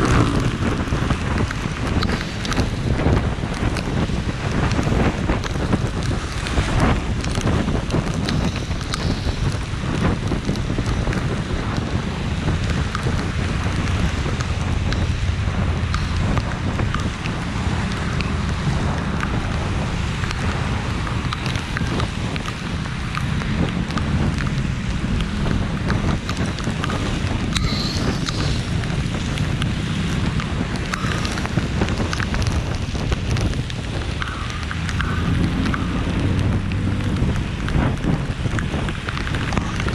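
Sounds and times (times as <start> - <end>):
heavy rain falling: 0.0 - 39.9
wind buffeting microphone: 0.0 - 39.9.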